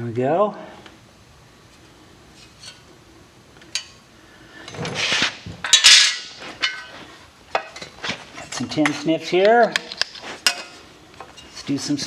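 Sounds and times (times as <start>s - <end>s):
metal tools clattering: 4.6s - 9.1s, 9.7s - 12.0s.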